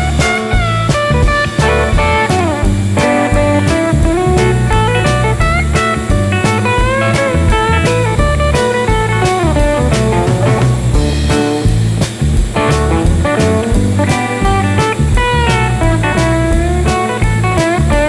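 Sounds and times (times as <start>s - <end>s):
blues music with slide guitar: 0.0s - 18.0s.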